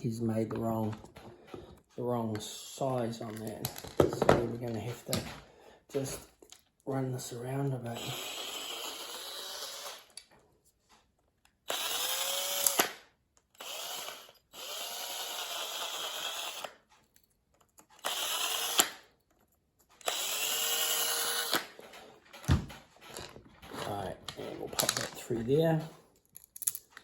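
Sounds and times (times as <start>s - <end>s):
power drill spinning: 7.2s - 10.2s, 11.7s - 13.0s, 13.6s - 16.8s, 18.0s - 19.1s, 20.0s - 25.8s.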